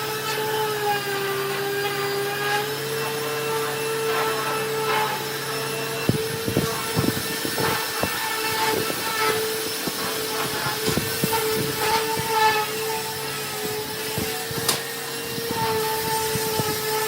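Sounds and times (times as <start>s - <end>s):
electric power tool whining: 0.0s - 17.0s
scraping on wood: 6.0s - 17.0s.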